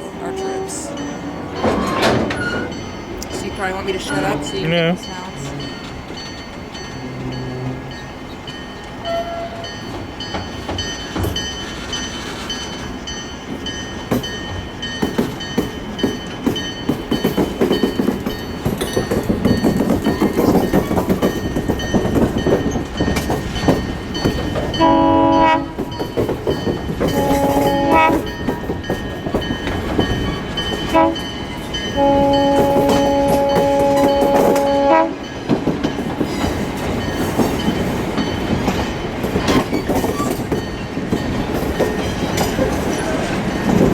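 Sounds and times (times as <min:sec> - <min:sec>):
train rumbling on track: 0:00.0 - 0:43.9
train air horn blasts: 0:24.8 - 0:25.9, 0:27.1 - 0:28.3, 0:30.9 - 0:31.2, 0:32.0 - 0:35.2.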